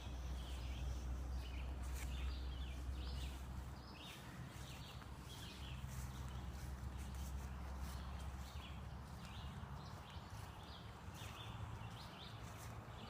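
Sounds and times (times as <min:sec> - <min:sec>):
birds chirping: 0:00.0 - 0:13.0
low rumble of wind: 0:00.0 - 0:13.0.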